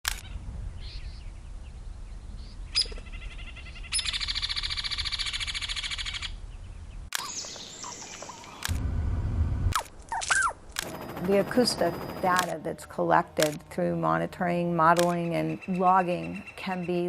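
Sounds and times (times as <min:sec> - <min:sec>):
birds calling: 0:00.2 - 0:08.8, 0:13.4 - 0:17.0
low outdoor rumble: 0:07.9 - 0:17.0.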